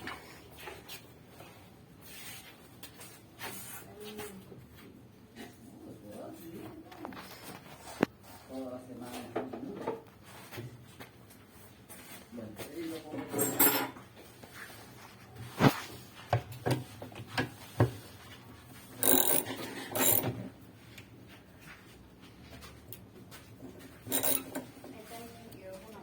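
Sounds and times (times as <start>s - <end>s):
tools knocking and clanking: 19.0s - 20.5s, 24.0s - 24.7s.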